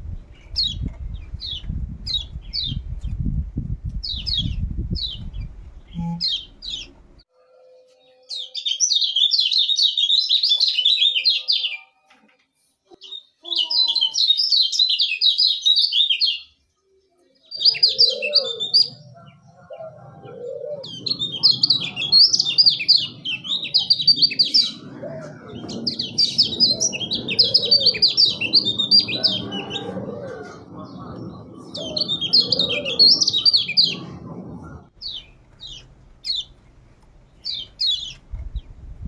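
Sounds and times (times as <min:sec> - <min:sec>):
bird chirping rapidly: 0:04.0 - 0:07.0, 0:20.8 - 0:24.9, 0:25.8 - 0:29.7, 0:31.7 - 0:34.2, 0:35.0 - 0:36.6, 0:37.4 - 0:38.7.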